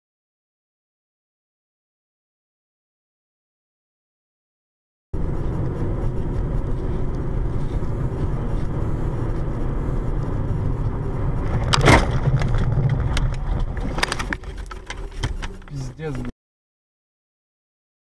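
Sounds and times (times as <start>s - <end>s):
car road and engine rumble: 5.2s - 16.3s.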